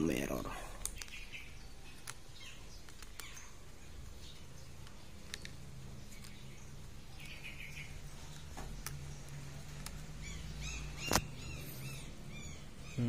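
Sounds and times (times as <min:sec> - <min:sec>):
small birds chirping: 0:00.0 - 0:13.0
sharp clicks: 0:00.8 - 0:03.5, 0:04.8 - 0:06.4.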